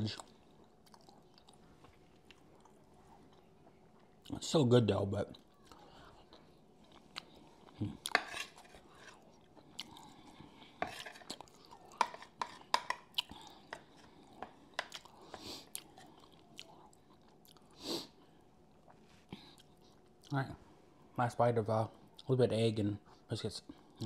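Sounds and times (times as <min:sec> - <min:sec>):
chewing food: 0:00.1 - 0:04.3, 0:05.4 - 0:17.8.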